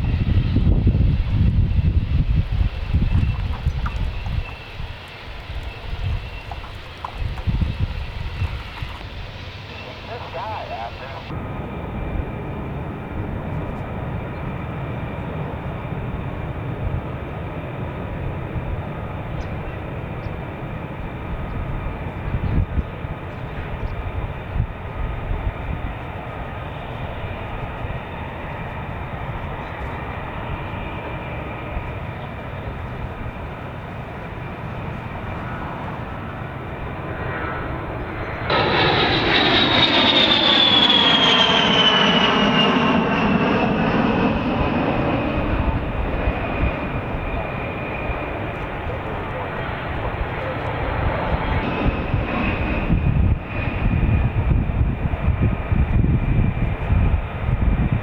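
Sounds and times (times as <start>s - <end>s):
jet passing close: 0.0s - 19.2s, 23.6s - 58.0s
jet engines running: 0.0s - 58.0s.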